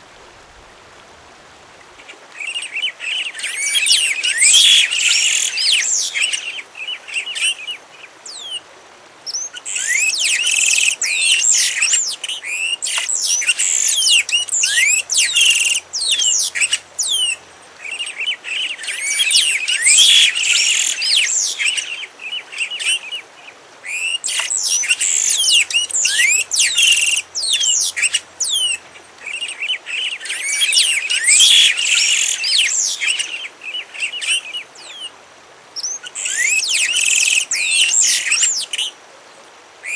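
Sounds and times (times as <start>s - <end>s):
songbird twittering: 2.0s - 8.6s, 9.2s - 35.1s, 35.8s - 39.0s.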